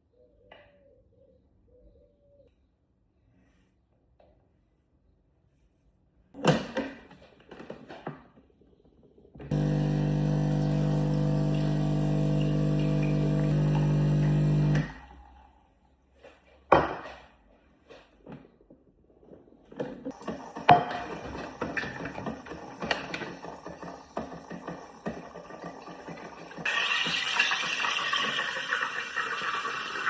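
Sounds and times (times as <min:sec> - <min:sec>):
coffee machine pump humming: 0:09.4 - 0:15.5, 0:20.1 - 0:30.0.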